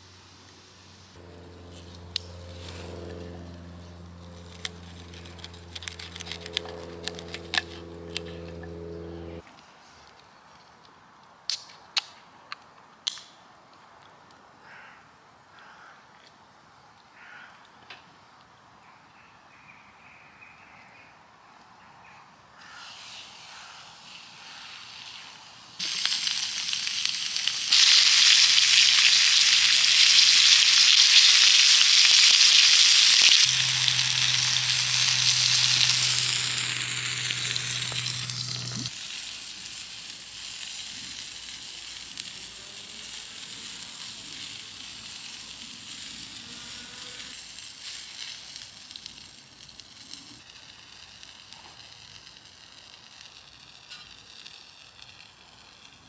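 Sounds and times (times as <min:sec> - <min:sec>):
food sizzling in a pan: 0:22.8 - 0:55.2.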